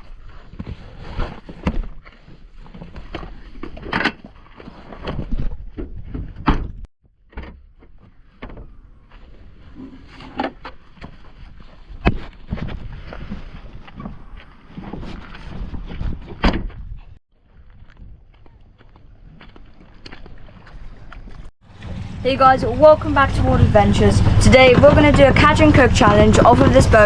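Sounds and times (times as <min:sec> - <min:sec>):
wind rumbling on microphone: 0:11.0 - 0:19.5, 0:20.4 - 0:27.0.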